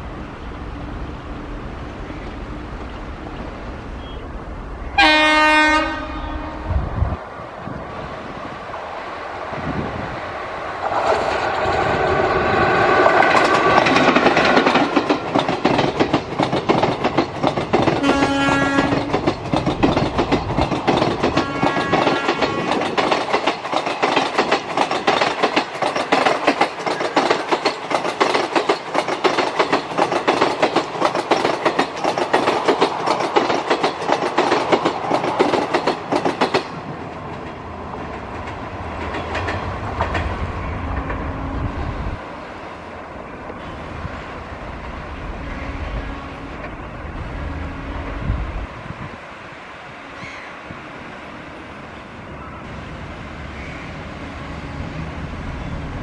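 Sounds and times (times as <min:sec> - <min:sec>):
train rumble: 0:00.0 - 0:56.0
train air horn: 0:05.0 - 0:06.9, 0:18.0 - 0:19.1, 0:21.4 - 0:22.7
train coaches clattering over rail joints: 0:10.8 - 0:41.3.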